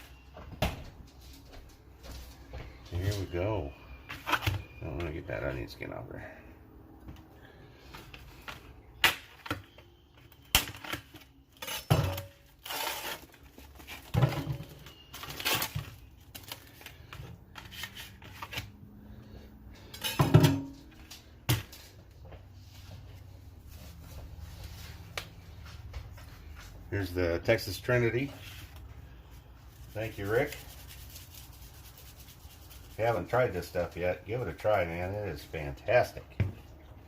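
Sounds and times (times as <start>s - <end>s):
dishes and utensils clinking: 20.0s - 20.8s.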